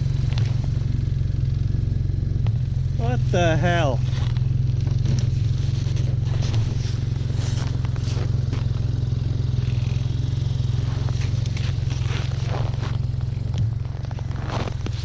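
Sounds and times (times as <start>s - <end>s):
snowmobile engine running: 0.0s - 15.0s
short scrapes and crackles: 3.3s - 15.0s.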